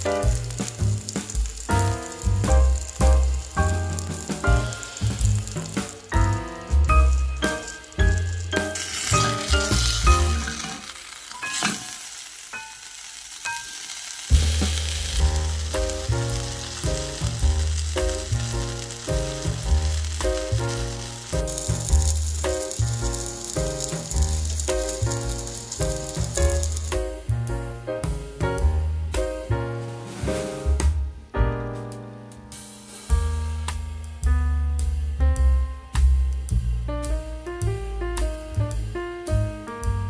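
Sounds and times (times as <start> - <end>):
background music with beat: 0.0 - 10.5, 14.3 - 40.0
flatbreads sizzling in oil: 0.0 - 30.7.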